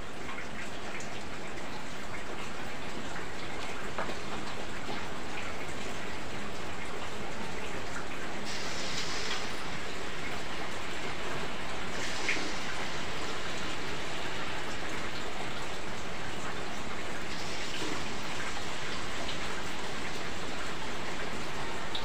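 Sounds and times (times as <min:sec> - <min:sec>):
heavy rain falling: 0:02.4 - 0:22.0
batter sizzling in hot oil: 0:08.4 - 0:16.2, 0:16.8 - 0:22.0.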